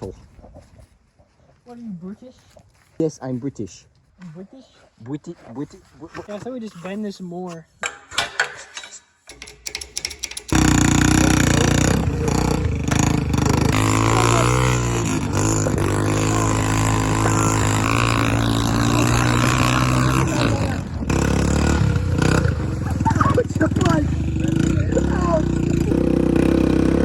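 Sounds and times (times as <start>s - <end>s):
dirt bike engine revving: 10.5s - 27.0s.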